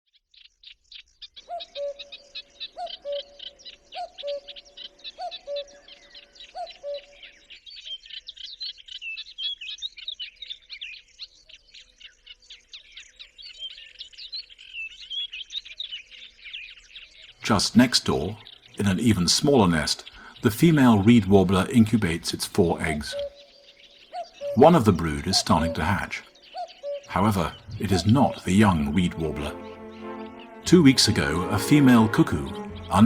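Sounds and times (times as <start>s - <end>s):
cuckoo calling: 22.6s - 23.4s, 24.4s - 33.0s.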